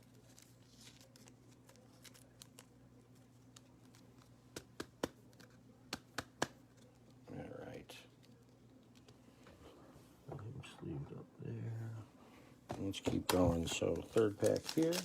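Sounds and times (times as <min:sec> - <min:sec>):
cards rustling: 0:00.0 - 0:09.2, 0:13.1 - 0:15.0
low electrical hum: 0:00.0 - 0:15.0.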